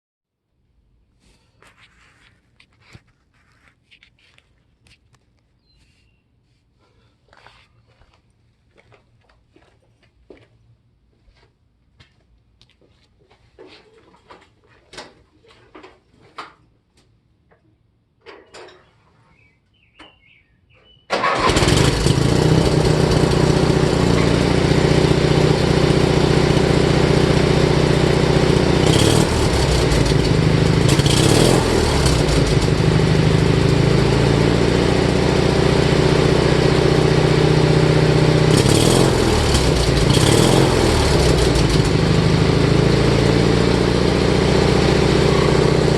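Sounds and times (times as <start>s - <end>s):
lawn tractor engine running: 21.1s - 45.9s.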